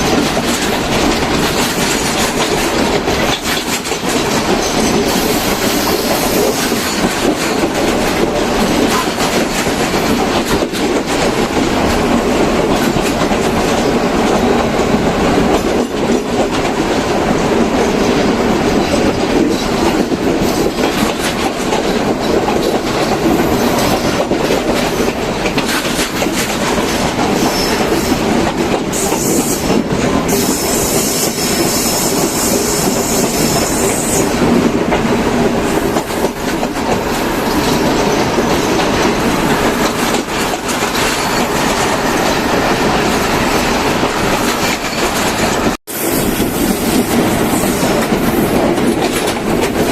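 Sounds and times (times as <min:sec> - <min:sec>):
train rumbling: 0:00.0 - 0:49.9
wheels clacking over rail joints: 0:00.0 - 0:49.9
wheel squeal: 0:27.3 - 0:28.2.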